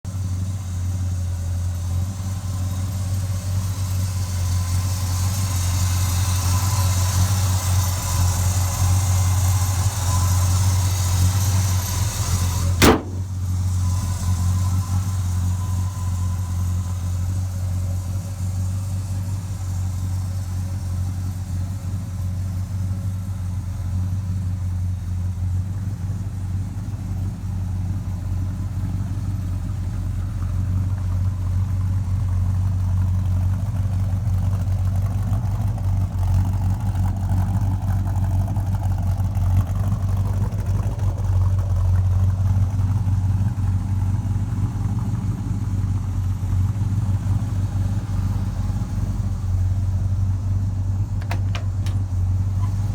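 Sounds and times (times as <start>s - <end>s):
truck engine idling: 0.0s - 52.9s
sharp knock: 12.8s - 13.4s.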